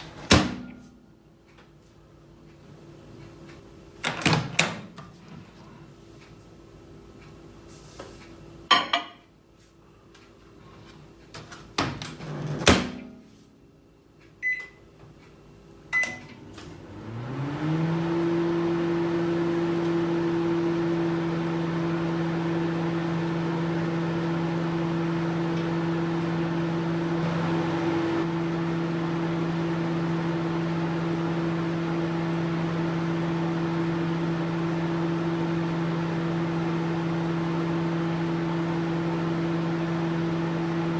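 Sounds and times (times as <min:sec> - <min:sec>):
microwave hum with fan whir: 0:00.0 - 0:40.9
keypad beeps: 0:14.4 - 0:14.8, 0:16.0 - 0:16.3.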